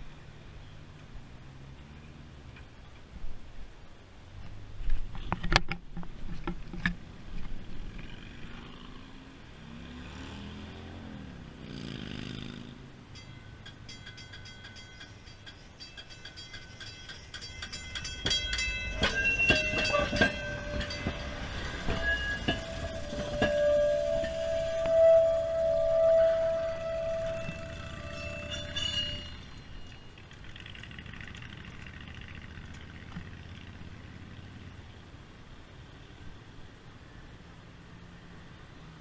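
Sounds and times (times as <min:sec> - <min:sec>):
streetcar motor whine: 0:12.9 - 0:35.0
wheels clicking over rails: 0:13.1 - 0:33.9
wheel squeal: 0:13.2 - 0:31.5
streetcar knocks: 0:16.0 - 0:29.3.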